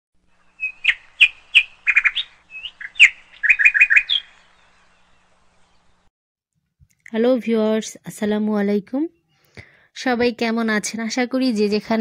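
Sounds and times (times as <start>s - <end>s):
bird singing: 0.3s - 6.1s.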